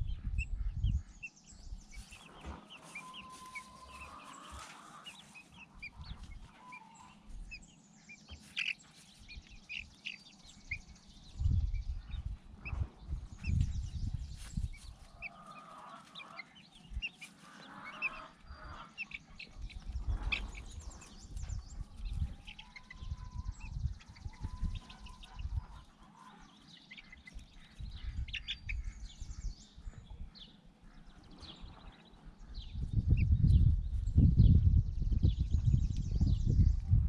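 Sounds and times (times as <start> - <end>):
chickens clucking: 0.0 - 33.7.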